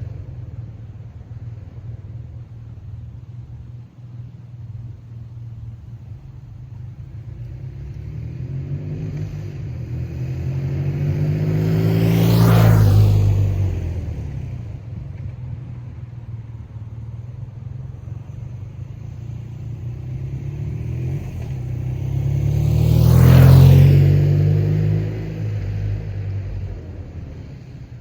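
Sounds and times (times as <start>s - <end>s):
motorcycle riding past: 5.8s - 28.0s.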